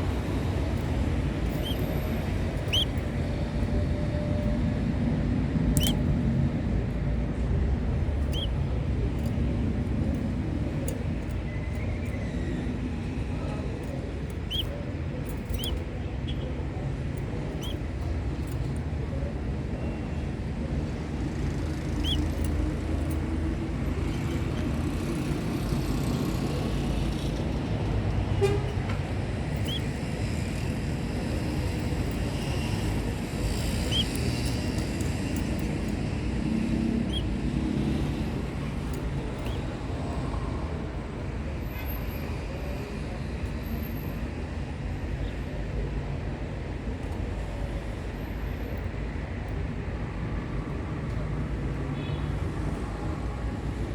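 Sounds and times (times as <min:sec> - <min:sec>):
canaries chirping: 0:00.2 - 0:03.0, 0:05.8 - 0:06.0, 0:08.2 - 0:08.6, 0:14.3 - 0:16.6, 0:17.5 - 0:17.8, 0:21.7 - 0:23.2, 0:29.6 - 0:30.0, 0:33.5 - 0:34.6, 0:36.8 - 0:37.4, 0:39.4 - 0:39.8.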